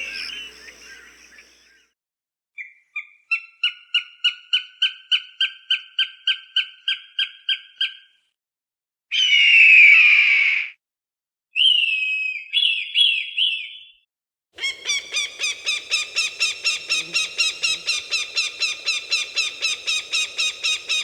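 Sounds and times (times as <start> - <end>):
falcon short sharp calls: 14.6 - 21.0.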